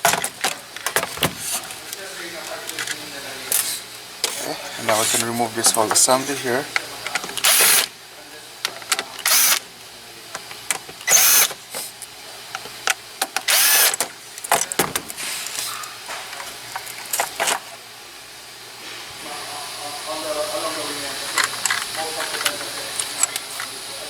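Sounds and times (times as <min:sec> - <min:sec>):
parts clicking and rattling: 0:00.0 - 0:07.9, 0:08.6 - 0:09.6, 0:10.3 - 0:17.8, 0:21.2 - 0:23.8
cordless power tool whirring: 0:07.3 - 0:07.9, 0:09.2 - 0:09.6, 0:10.5 - 0:11.7, 0:13.3 - 0:14.1.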